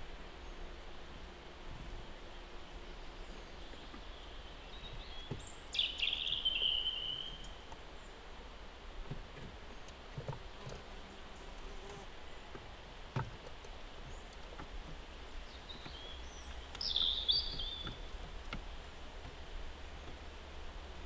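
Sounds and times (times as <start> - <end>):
bird chirping: 3.0 - 8.2, 15.2 - 18.3.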